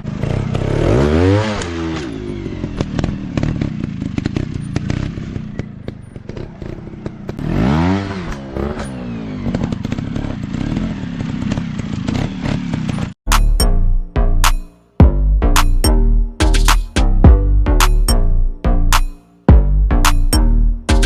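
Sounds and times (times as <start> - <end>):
dirt bike engine revving: 0.0 - 13.1.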